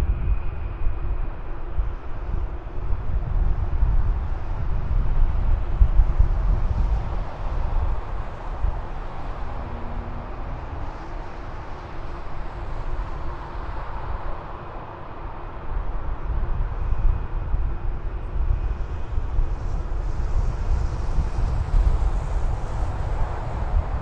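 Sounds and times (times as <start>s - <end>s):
jet engines rumbling: 2.2s - 15.6s
faint high whine: 7.8s - 14.3s.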